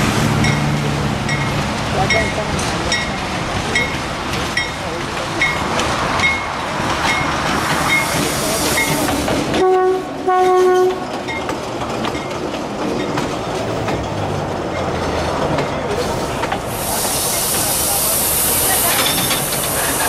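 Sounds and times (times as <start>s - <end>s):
diesel locomotive passing: 0.0s - 20.0s
train wheels clicking: 0.4s - 20.0s
locomotive horn blasts: 9.6s - 11.0s.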